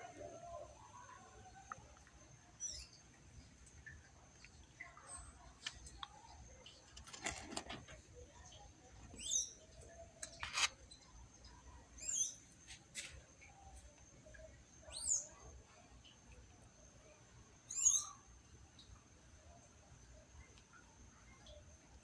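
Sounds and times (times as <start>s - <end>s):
brief rustle: 5.6s - 8.0s, 10.2s - 10.8s.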